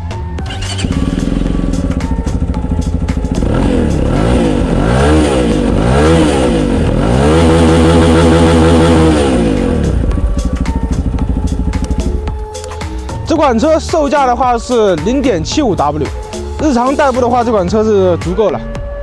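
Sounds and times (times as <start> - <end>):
motorcycle engine revving: 0.0 - 12.6.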